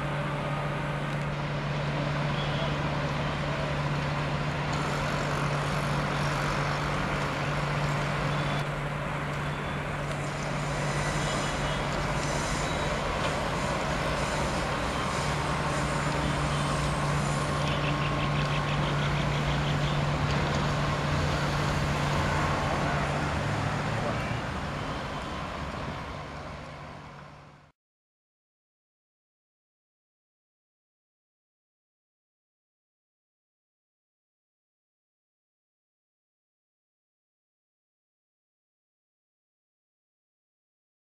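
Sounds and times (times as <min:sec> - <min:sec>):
train running past: 0:00.0 - 0:27.7.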